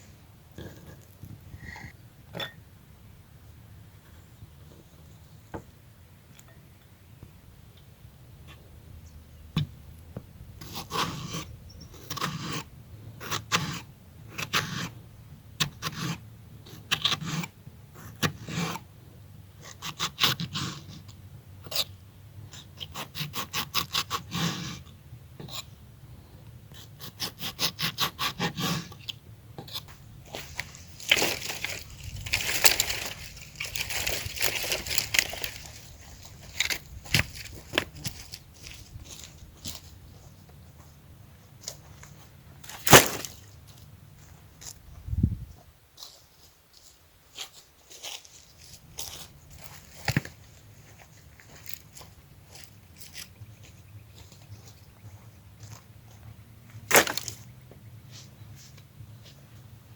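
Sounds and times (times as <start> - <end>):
rustling: 29.8 - 40.9, 41.6 - 45.0, 56.8 - 57.5.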